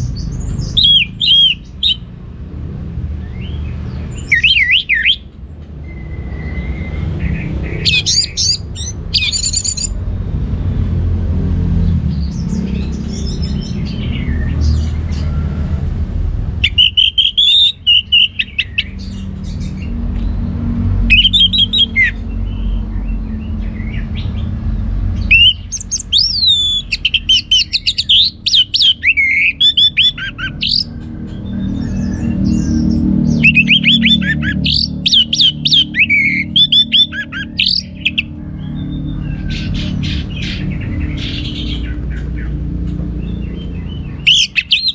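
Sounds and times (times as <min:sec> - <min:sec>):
bird singing whistled phrases: 0:04.2 - 0:05.2, 0:07.8 - 0:10.0, 0:16.6 - 0:18.9, 0:21.1 - 0:22.2, 0:25.3 - 0:30.9, 0:33.4 - 0:38.3
steady low rumble: 0:06.8 - 0:17.1.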